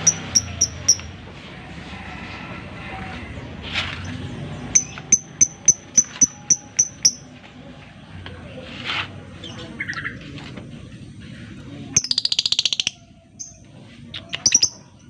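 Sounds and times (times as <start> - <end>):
lovebird ticking call: 0.0 - 1.1, 4.7 - 7.2.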